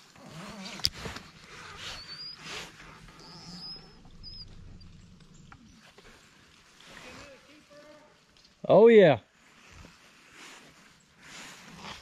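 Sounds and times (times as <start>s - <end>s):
small bird chirping faintly: 1.3s - 6.9s
low steady hum: 2.7s - 6.6s.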